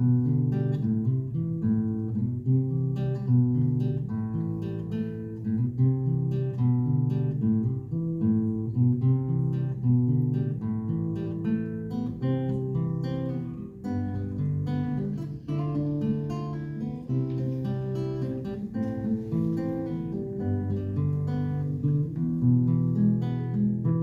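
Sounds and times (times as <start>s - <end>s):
acoustic guitar plucking and strumming: 0.0s - 24.0s.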